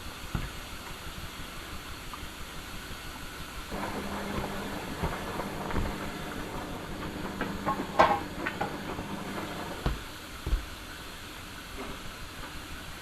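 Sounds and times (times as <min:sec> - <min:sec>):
washing machine motor hum: 0:03.6 - 0:10.3
clicks and knocks: 0:03.7 - 0:10.0.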